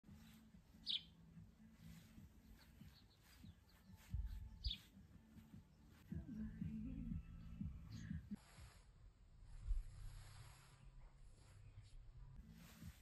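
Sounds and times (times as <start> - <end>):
short high bird chirps: 0.8 - 1.2, 2.9 - 4.9.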